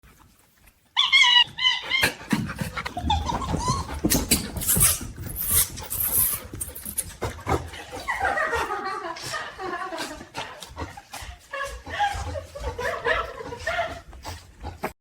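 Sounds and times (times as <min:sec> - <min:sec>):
high-pitched animal squeals: 0:01.0 - 0:02.2.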